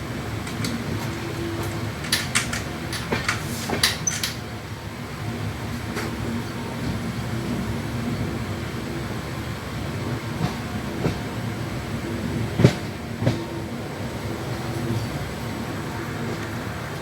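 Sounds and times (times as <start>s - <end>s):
wheels clunking over rail joints: 0.0s - 4.6s
train rumbling: 0.0s - 17.0s.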